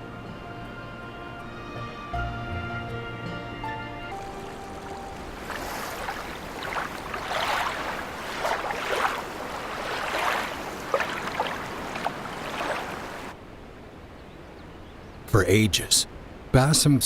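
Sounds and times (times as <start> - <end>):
music: 0.0 - 5.5
lake water lapping and splashing: 4.1 - 13.4.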